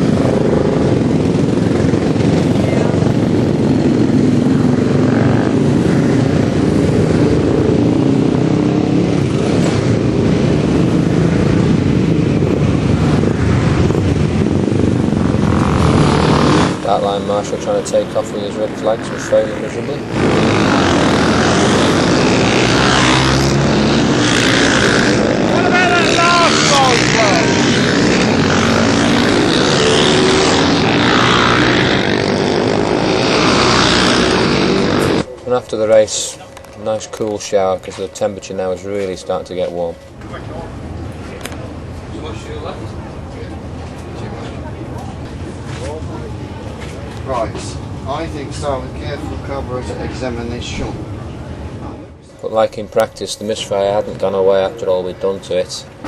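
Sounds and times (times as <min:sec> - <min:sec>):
racing motorcycle engines: 0:00.0 - 0:56.0.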